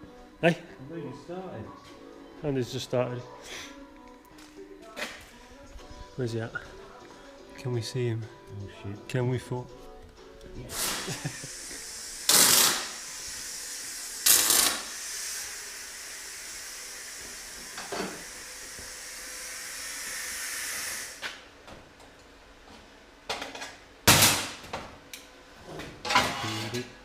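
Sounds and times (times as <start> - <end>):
steady high hiss: 10.6 - 21.6
loud hissing bursts: 10.7 - 21.4.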